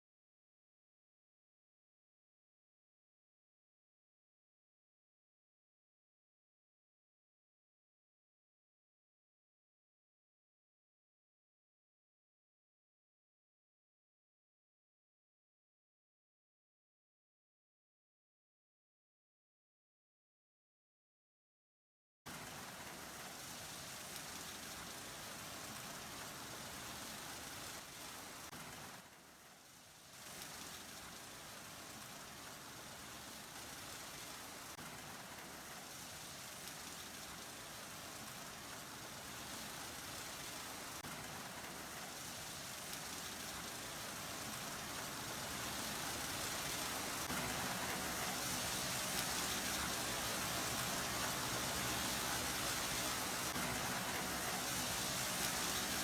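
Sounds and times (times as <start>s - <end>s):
water spraying over car: 30.1s - 56.0s.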